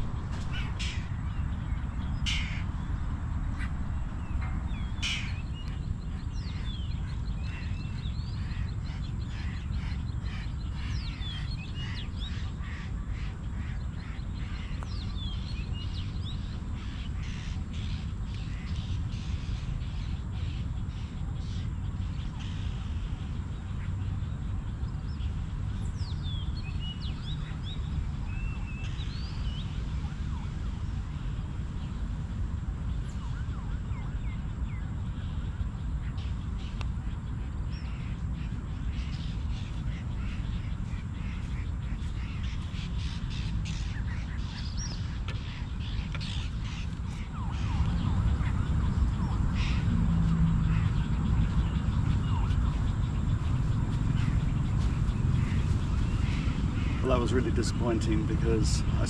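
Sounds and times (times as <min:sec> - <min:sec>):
low rumble: 0:00.0 - 0:09.9
birds chirping and whistling: 0:00.0 - 0:32.0, 0:32.8 - 0:59.0
steady low rumble: 0:00.0 - 0:59.0.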